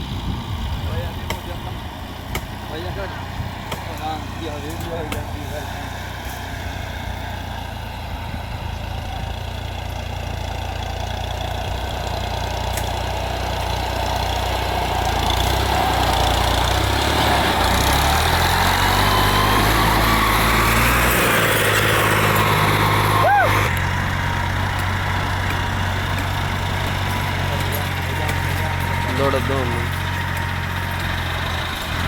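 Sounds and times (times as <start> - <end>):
tractor diesel engine revving: 0.0 - 32.0.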